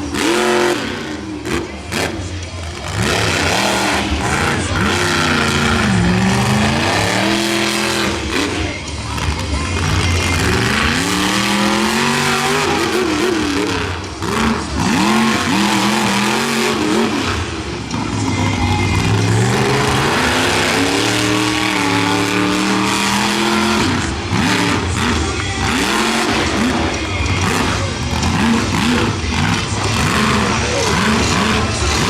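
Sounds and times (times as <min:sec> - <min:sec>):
truck engine revving hard: 0:00.0 - 0:32.0.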